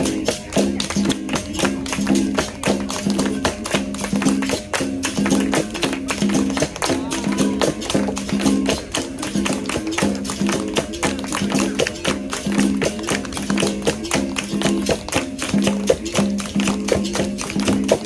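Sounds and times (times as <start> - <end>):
hand-struck percussion: 0.0 - 18.0
pandeiro jingles: 0.0 - 18.0.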